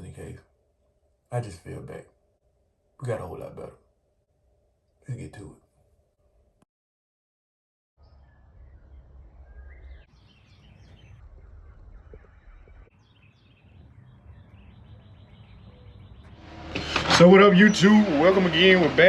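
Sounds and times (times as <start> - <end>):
faint birdsong chirps: 8.0 - 19.0.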